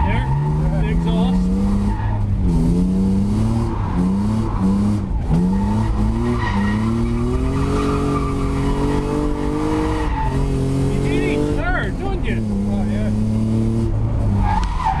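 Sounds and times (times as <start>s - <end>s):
car engine revving hard: 0.0s - 15.0s
tyre squeal: 5.4s - 10.5s.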